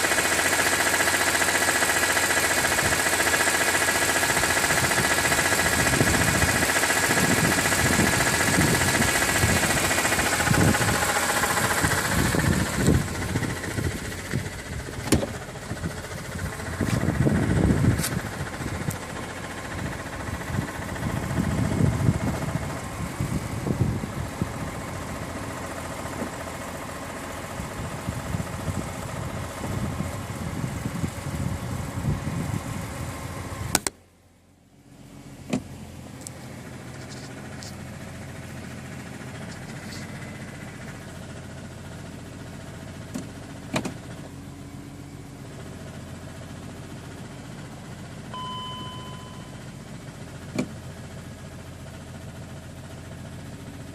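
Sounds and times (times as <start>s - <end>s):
car engine running: 0.0s - 53.9s
sharp click: 33.7s - 34.0s.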